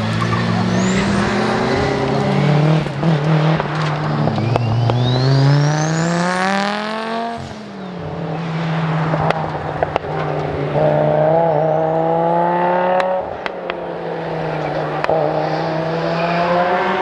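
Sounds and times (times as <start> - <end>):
low engine hum: 0.0 - 7.1
exhaust cracks: 0.0 - 17.0
rally car engines accelerating: 0.0 - 17.0.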